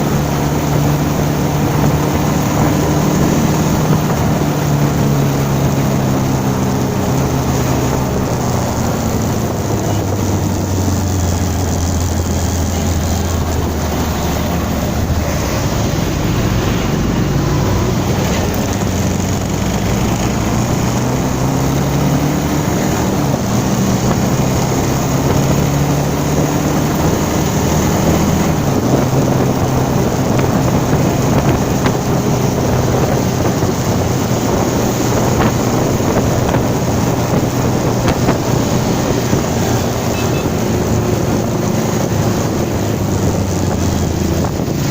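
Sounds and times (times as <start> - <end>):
motorcycle engine running: 0.0 - 44.9
wind noise on microphone: 0.0 - 44.9.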